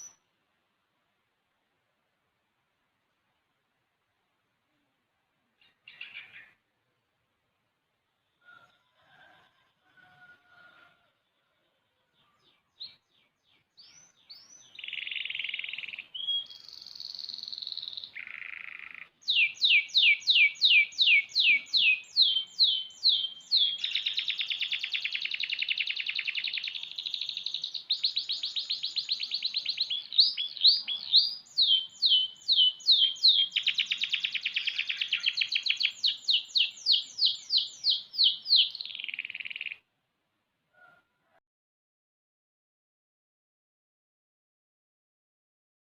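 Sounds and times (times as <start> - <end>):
canary singing: 12.2 - 39.9.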